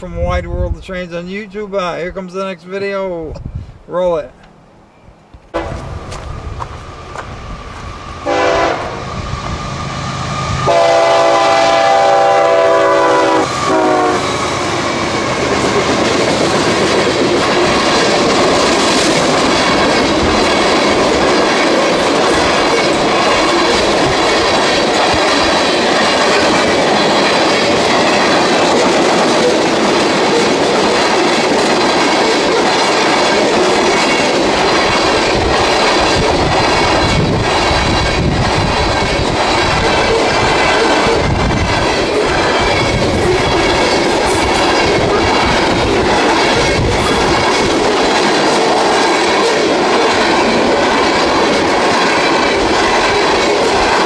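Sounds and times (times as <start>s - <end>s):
train rumbling past on rails: 4.5s - 54.0s
locomotive air horn: 8.2s - 9.0s, 10.5s - 14.3s.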